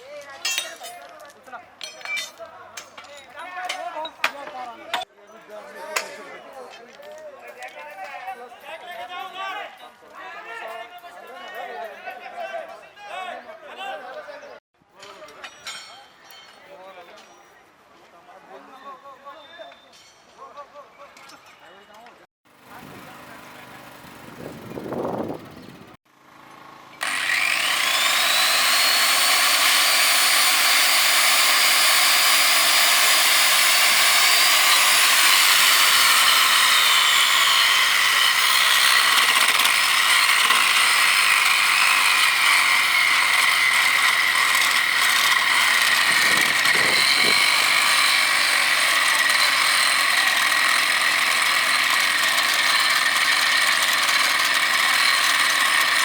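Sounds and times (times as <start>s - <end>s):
power tool whining on steel rail: 27.0s - 56.0s.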